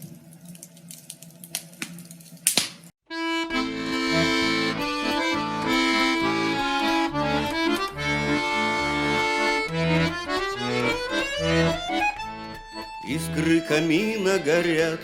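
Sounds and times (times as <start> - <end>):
accordion playing: 3.1 - 15.0.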